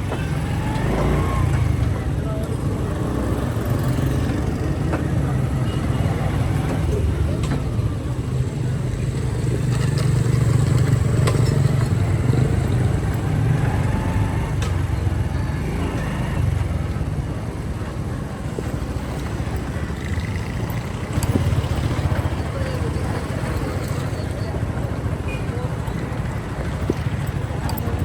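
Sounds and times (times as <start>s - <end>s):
motorcycle engine rumbling: 0.0s - 28.0s
road noise: 0.0s - 28.0s.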